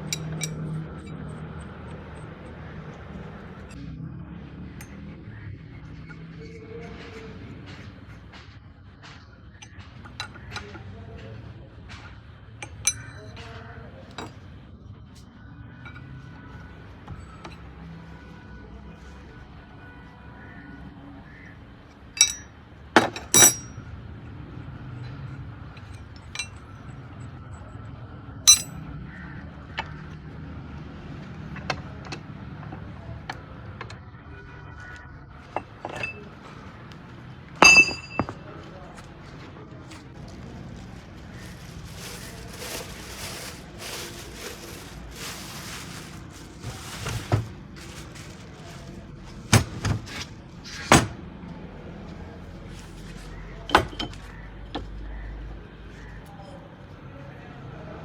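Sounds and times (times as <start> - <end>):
metal tools clinking: 0.0 - 2.9, 12.6 - 13.3, 22.2 - 23.8, 25.8 - 26.7, 28.5 - 28.8, 35.6 - 36.6, 37.6 - 38.4.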